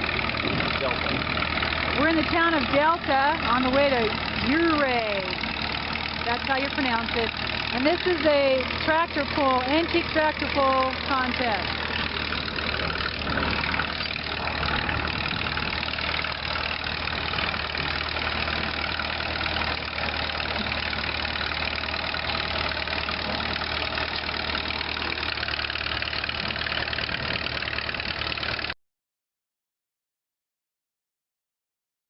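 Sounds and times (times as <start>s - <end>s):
tractor engine running: 0.0s - 28.8s.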